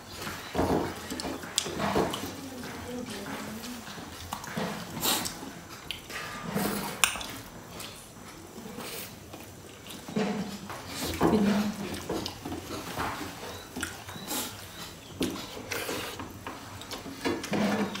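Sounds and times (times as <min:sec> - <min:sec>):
wet chewing and lip smacks: 0:01.0 - 0:02.3, 0:03.8 - 0:06.2.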